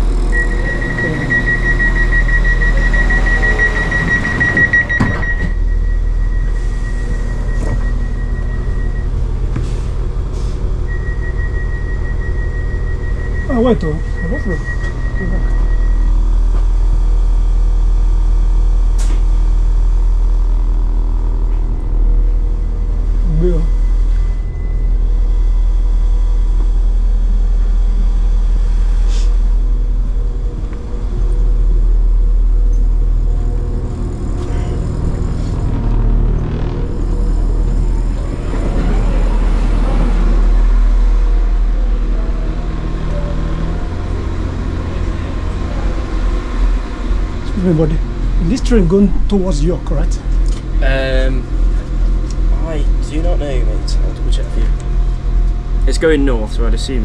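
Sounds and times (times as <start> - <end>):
train engine hum: 0.0 - 57.0
short sharp hiss: 29.1 - 29.4.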